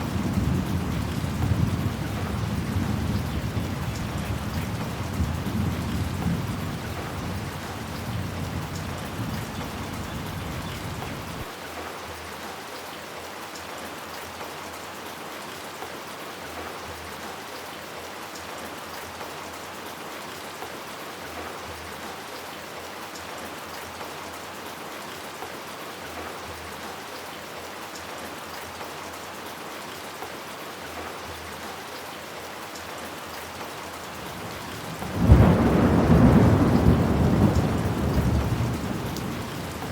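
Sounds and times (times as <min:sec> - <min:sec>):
steady rain hissing: 0:00.0 - 0:39.9
low thunder rumble: 0:34.2 - 0:39.9.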